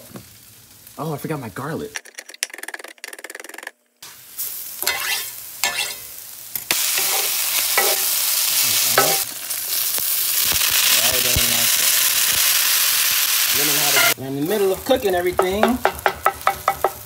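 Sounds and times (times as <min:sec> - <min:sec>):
food sizzling: 0:00.0 - 0:02.7, 0:03.4 - 0:17.0
wooden spatula scraping skillet: 0:06.9 - 0:08.0.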